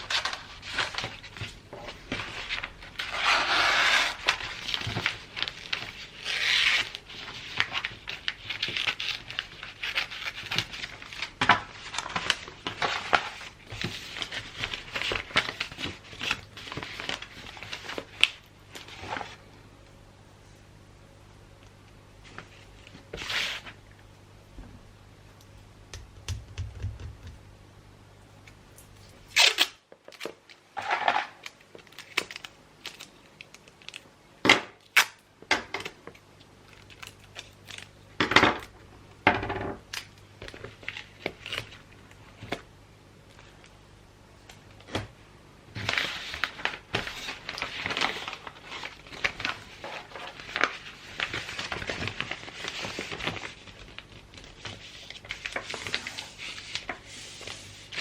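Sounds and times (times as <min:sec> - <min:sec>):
paper crinkling and rustling: 0:00.0 - 0:19.5, 0:45.7 - 0:58.0
wrapping paper crackling and ripping: 0:00.0 - 0:19.5, 0:29.2 - 0:34.1, 0:36.6 - 0:38.0, 0:40.4 - 0:42.6, 0:45.7 - 0:58.0.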